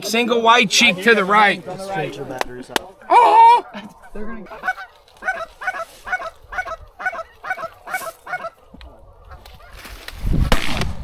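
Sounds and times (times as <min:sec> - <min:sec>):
goose clucks: 0:03.6 - 0:08.7.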